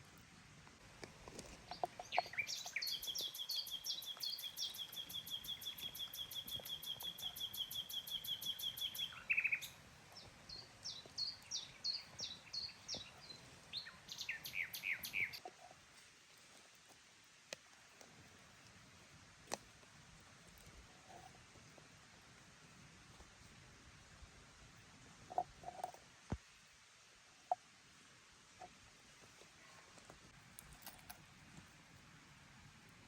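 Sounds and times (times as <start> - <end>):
songbirds trilling: 1.4 - 15.5.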